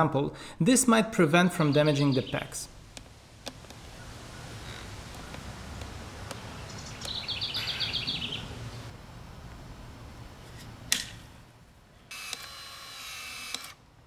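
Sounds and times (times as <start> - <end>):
bird trilling: 6.7 - 8.5.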